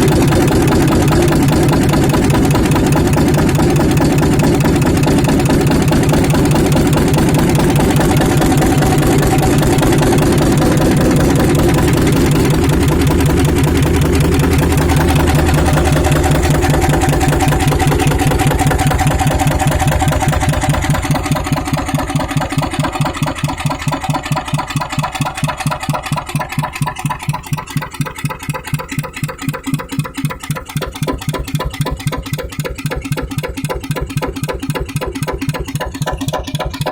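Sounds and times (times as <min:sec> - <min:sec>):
diesel engine running: 0:00.0 - 0:36.9.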